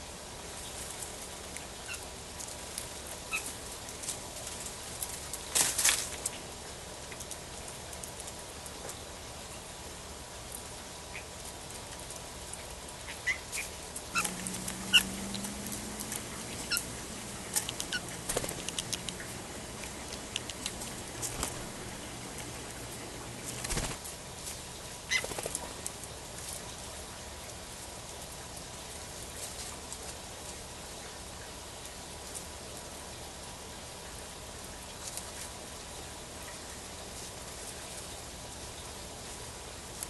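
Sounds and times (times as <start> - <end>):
steady hiss: 0.0 - 40.0
songbird chip calls: 13.1 - 23.6
flutter of wings: 14.1 - 24.1, 25.1 - 25.9.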